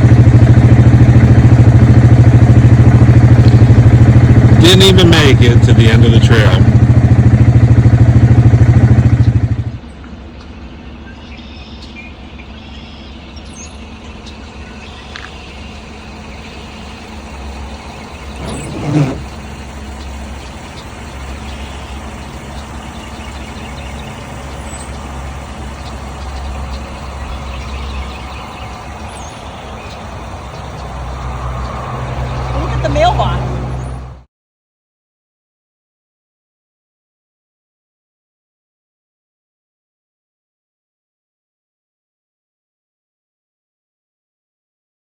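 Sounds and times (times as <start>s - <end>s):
road rumble: 0.0s - 34.3s
vehicle engine droning: 0.0s - 34.3s.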